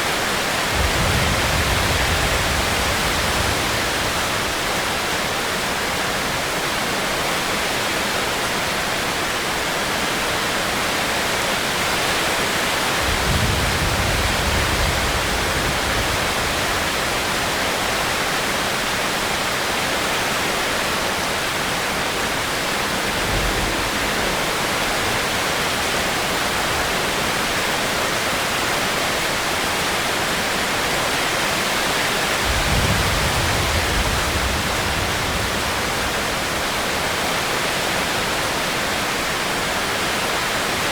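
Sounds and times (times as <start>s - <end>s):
heavy rain hissing: 0.0s - 6.4s, 12.2s - 18.4s, 30.7s - 40.9s.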